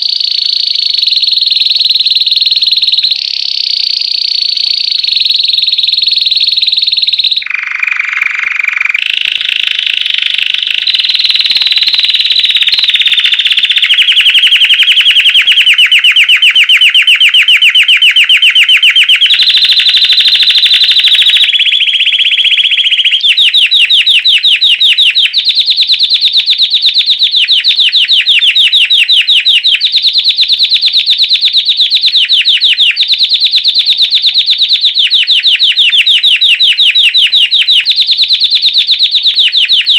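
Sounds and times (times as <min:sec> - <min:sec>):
canary singing rapid trills: 0:00.0 - 0:39.9.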